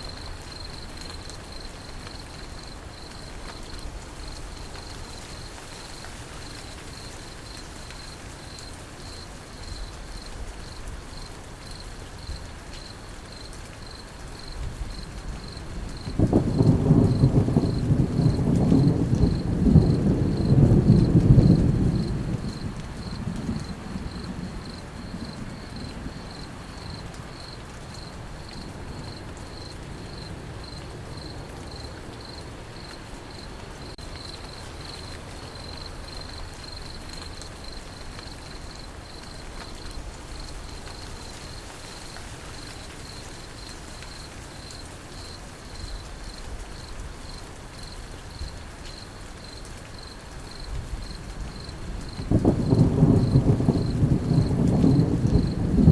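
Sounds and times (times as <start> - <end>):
crickets chirping: 0.0 - 55.9
rain falling: 0.0 - 55.9
thunder rolling: 15.5 - 27.0, 50.9 - 55.9.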